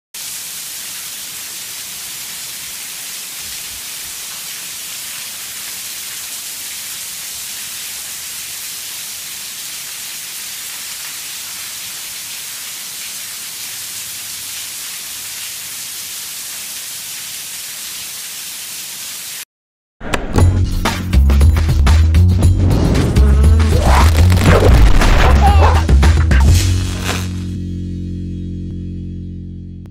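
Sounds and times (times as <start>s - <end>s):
heavy rain on pavement: 0.2s - 19.4s, 23.6s - 27.4s.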